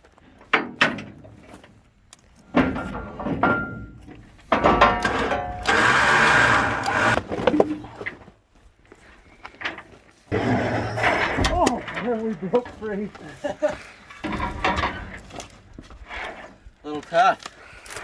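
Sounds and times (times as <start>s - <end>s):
metal ramps clanking: 0.5s - 1.7s, 2.4s - 8.2s, 9.7s - 13.1s, 14.0s - 15.6s
metal scraping on metal: 4.5s - 7.8s, 10.3s - 13.0s.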